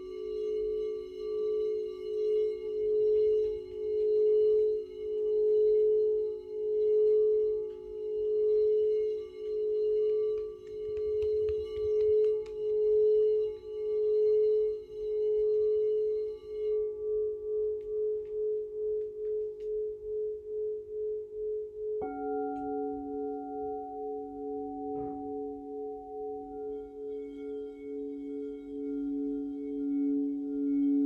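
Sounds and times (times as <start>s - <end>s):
singing bowl ringing: 0.0s - 31.0s
singing bowl struck: 22.0s - 31.0s.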